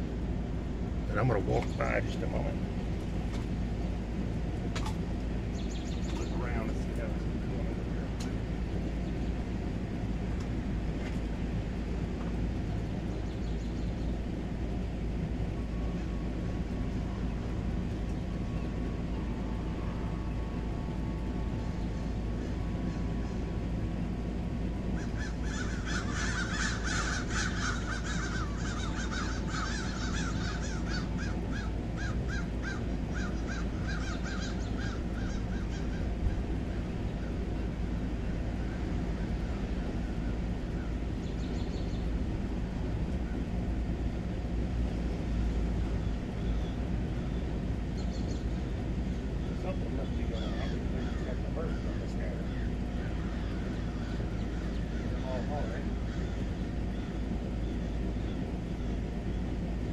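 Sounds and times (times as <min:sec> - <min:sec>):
outdoor background noise: 0:00.0 - 0:59.9
bird calling rapidly: 0:05.4 - 0:10.6, 0:24.6 - 0:43.6, 0:45.3 - 0:59.9.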